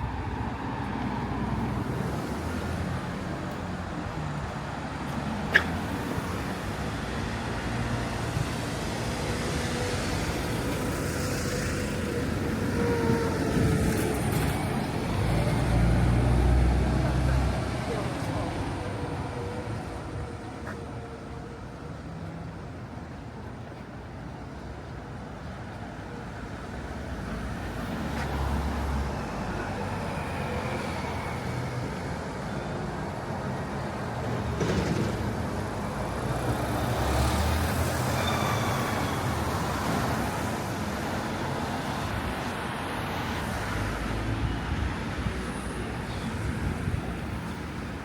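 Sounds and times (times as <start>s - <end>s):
road traffic passing: 0.0s - 48.0s.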